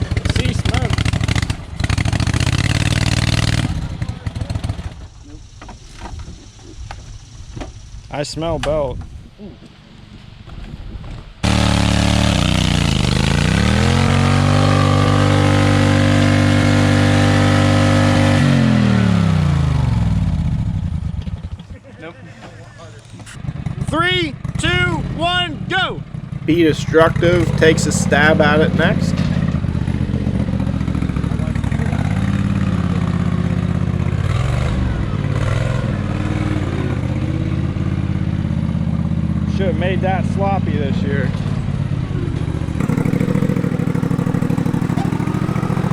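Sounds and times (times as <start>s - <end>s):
lawn tractor engine revving: 0.0s - 5.2s, 11.4s - 20.8s, 26.4s - 38.6s, 42.8s - 45.9s.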